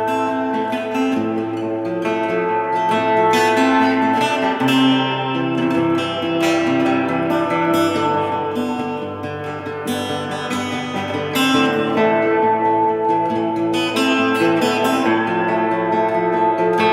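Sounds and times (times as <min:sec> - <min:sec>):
acoustic guitar melody: 0:00.0 - 0:16.9.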